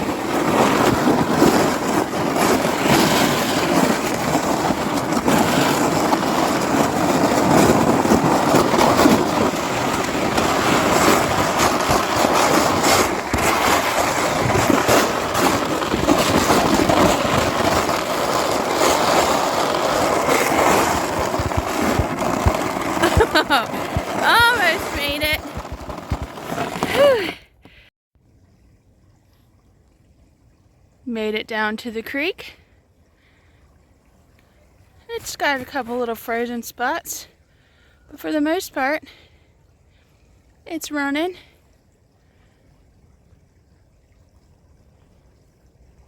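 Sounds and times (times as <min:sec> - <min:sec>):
sled scraping over crusty snow: 0:00.0 - 0:27.5, 0:35.1 - 0:37.2.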